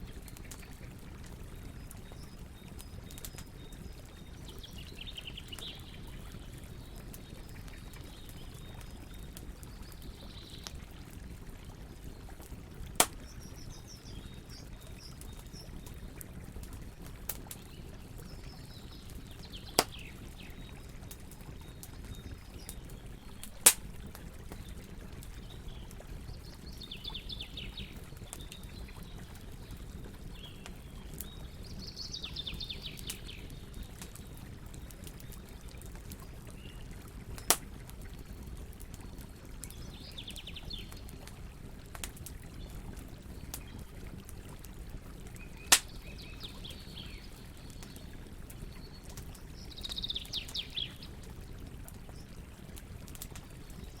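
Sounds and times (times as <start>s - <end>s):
wood fire crackling: 0.0s - 31.9s, 32.5s - 54.0s
loud pops of burning wood: 2.8s - 3.6s, 12.8s - 13.6s, 16.7s - 17.7s, 19.6s - 20.2s, 23.4s - 24.8s, 37.3s - 37.9s, 45.6s - 46.0s.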